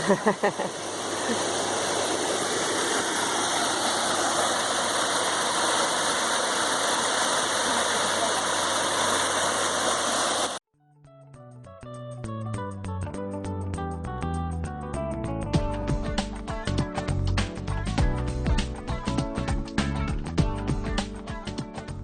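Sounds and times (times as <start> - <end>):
waterfall rushing: 0.0 - 10.6
faint guitar tune: 10.8 - 21.4.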